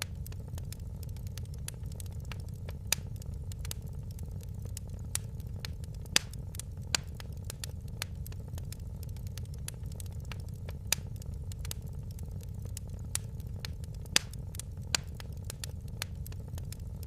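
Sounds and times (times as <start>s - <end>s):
fireplace fire crackling: 0.0s - 17.0s.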